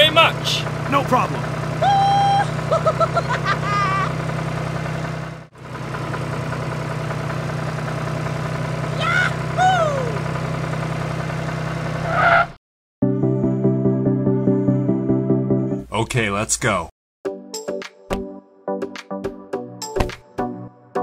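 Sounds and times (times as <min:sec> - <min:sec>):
tractor engine idling drone: 0:00.0 - 0:12.4.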